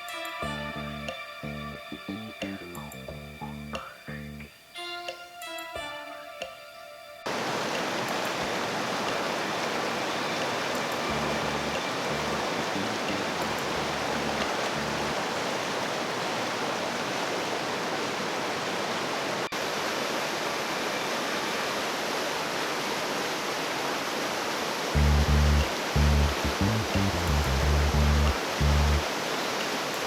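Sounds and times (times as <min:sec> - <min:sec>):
low bass background music: 0:00.4 - 0:04.5, 0:11.1 - 0:15.3, 0:25.0 - 0:29.0
river water rushing: 0:07.3 - 0:30.0.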